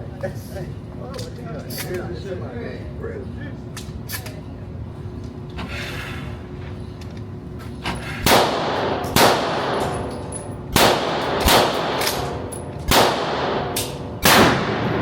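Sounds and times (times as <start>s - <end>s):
echoing gunshots: 8.2s - 10.1s, 10.7s - 15.0s.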